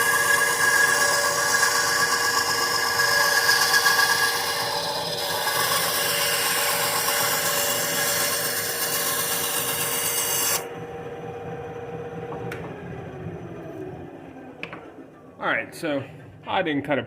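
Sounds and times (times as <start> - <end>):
bandsaw cutting wood: 0.0 - 10.8
bandsaw motor humming: 0.0 - 16.0.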